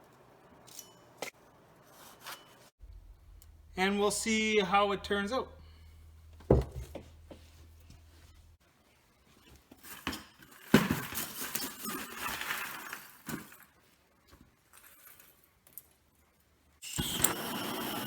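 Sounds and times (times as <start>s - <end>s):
metal clinking and knocking: 6.0s - 8.5s.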